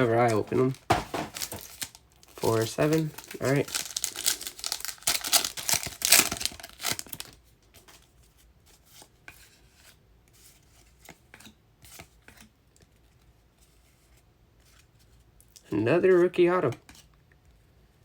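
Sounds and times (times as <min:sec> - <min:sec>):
foil wrapper crinkling and tearing: 0:00.0 - 0:07.4
cards clicking and rustling: 0:00.0 - 0:08.1.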